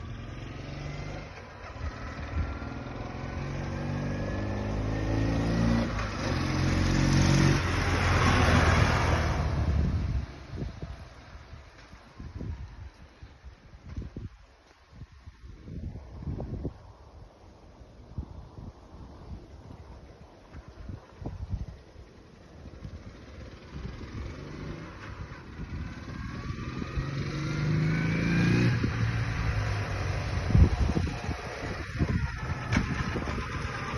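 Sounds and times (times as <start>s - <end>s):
motorcycle engine accelerating: 0.0s - 13.0s, 20.1s - 33.9s
gear change: 20.4s - 33.9s.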